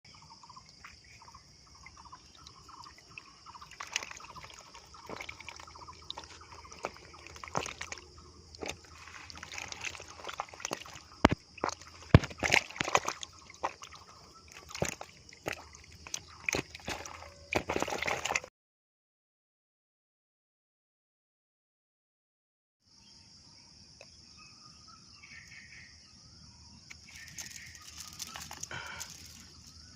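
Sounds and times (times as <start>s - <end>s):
water sloshing and splashing: 0.6s - 18.5s, 27.0s - 29.9s.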